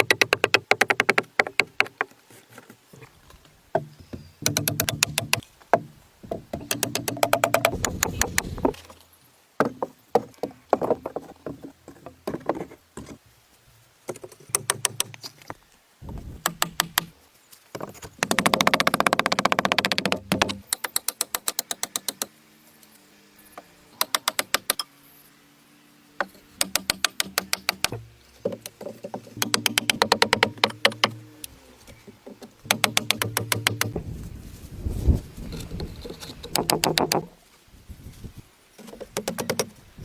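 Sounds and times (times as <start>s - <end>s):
knocking and striking blows: 6.3s - 8.9s, 29.2s - 31.4s, 32.7s - 34.2s.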